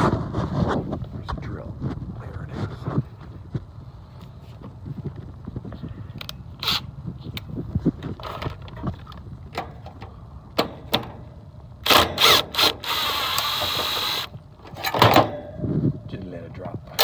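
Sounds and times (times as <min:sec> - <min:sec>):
cordless drill running: 0:11.8 - 0:14.3.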